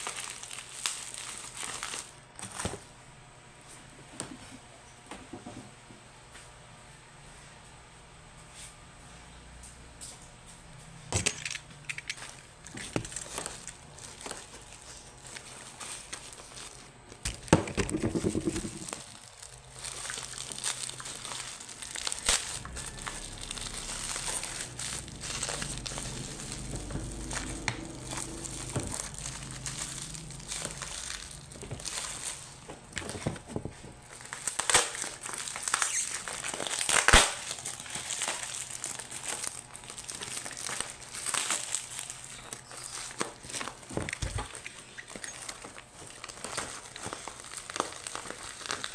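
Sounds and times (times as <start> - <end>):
packaging wrapping crinkling: 0.0 - 2.9, 11.2 - 48.9.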